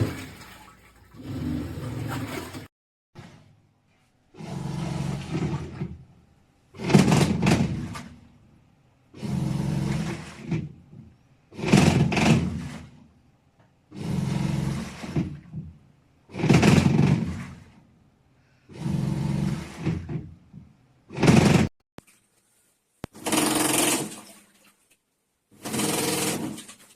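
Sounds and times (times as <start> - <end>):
water churning: 0.0 - 2.7
washing machine motor running: 4.4 - 6.1, 9.1 - 10.7, 13.9 - 15.5, 18.7 - 20.2.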